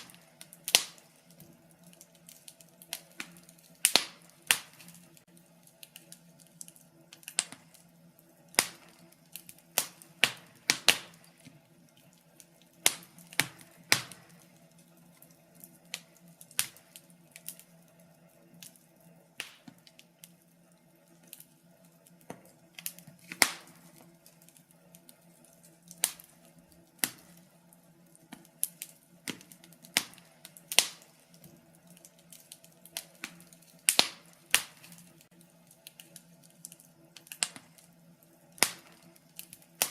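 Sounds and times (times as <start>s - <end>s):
faint steady low hum: 0.0s - 39.9s
wood fire crackling: 0.0s - 39.9s.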